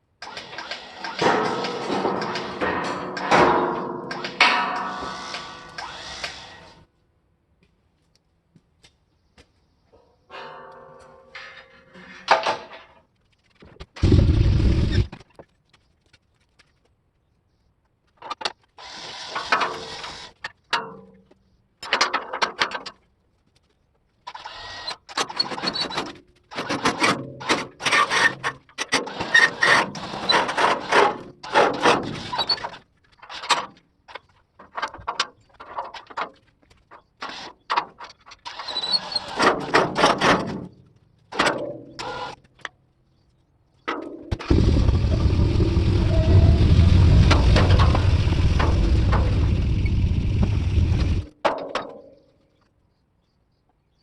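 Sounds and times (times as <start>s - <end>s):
metal clanking and clattering: 0.4s - 5.8s, 10.3s - 13.1s, 43.9s - 52.0s
heavy low thump: 44.5s - 51.3s.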